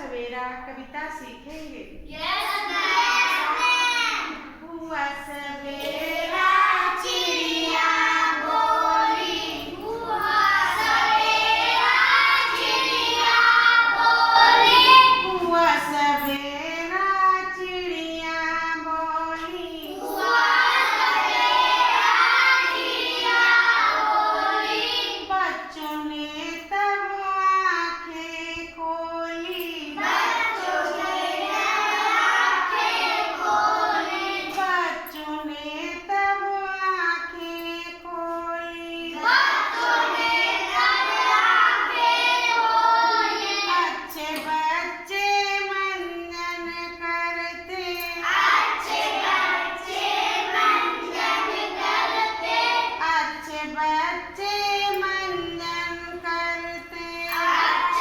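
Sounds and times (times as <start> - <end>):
children singing: 2.1 - 4.6, 5.5 - 16.2, 18.8 - 25.6, 29.6 - 35.1, 38.9 - 45.8, 47.6 - 58.0.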